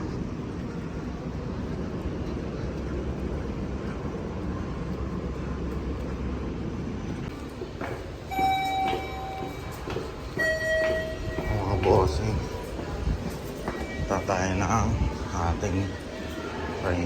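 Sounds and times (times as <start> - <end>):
train rumbling past: 0.0 - 17.0
steady high tone: 8.3 - 12.6.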